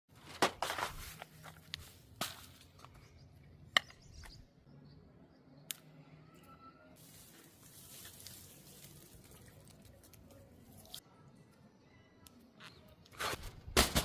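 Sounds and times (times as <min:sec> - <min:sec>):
materials rustling: 0:00.1 - 0:03.0, 0:07.0 - 0:11.0.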